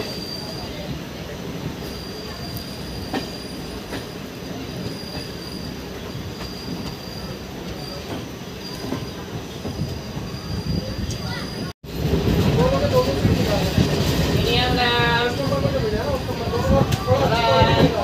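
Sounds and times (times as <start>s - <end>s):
train wheels rumbling on rails: 0.0s - 18.0s
high-pitched wheel squeal: 4.7s - 9.2s, 10.3s - 11.7s.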